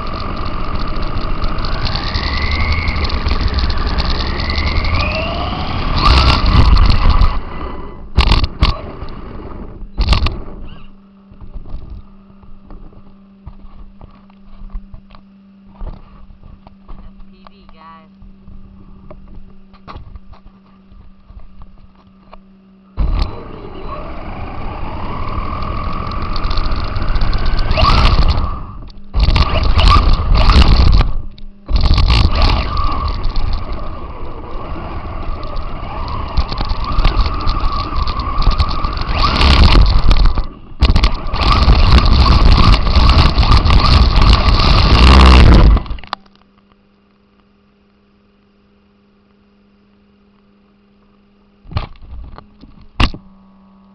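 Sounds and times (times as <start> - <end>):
toy car motor whining: 0.0 - 11.0, 23.0 - 46.2
rumbling rattle of tyres: 0.0 - 17.4, 18.2 - 46.2
low electrical hum: 0.0 - 53.9.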